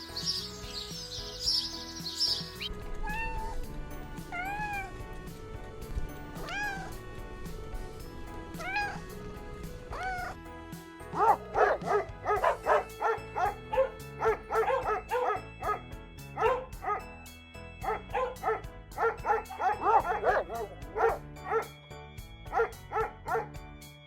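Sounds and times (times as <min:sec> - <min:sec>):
background music: 0:00.0 - 0:24.0
dog barking: 0:03.0 - 0:03.6, 0:04.4 - 0:05.0, 0:08.6 - 0:09.0, 0:09.9 - 0:10.4, 0:11.2 - 0:15.8, 0:16.4 - 0:17.0, 0:17.8 - 0:21.7, 0:22.5 - 0:23.5.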